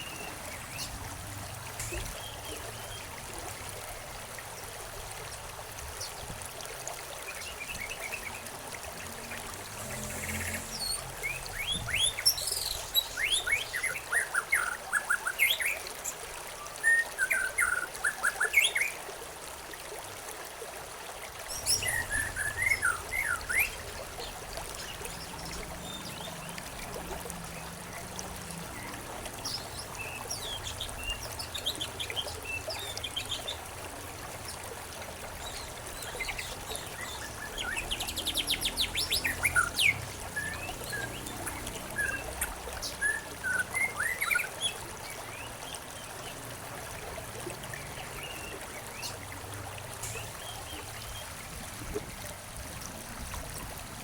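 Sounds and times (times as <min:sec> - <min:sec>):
trickling stream: 0:00.0 - 0:54.0
small birds chirping: 0:09.6 - 0:14.8, 0:21.5 - 0:27.7.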